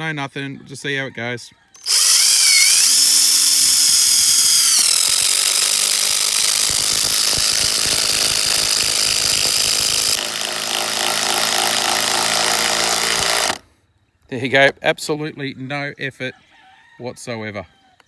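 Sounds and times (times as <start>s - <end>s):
impact driver driving screw into wood: 1.8s - 13.6s.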